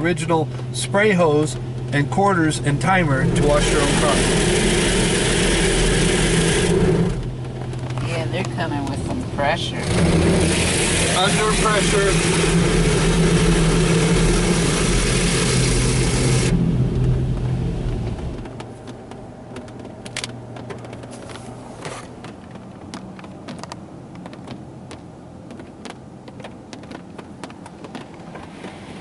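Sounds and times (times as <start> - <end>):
low pump drone: 0.0 - 8.1, 9.0 - 22.8
water jets spraying car: 0.0 - 18.4.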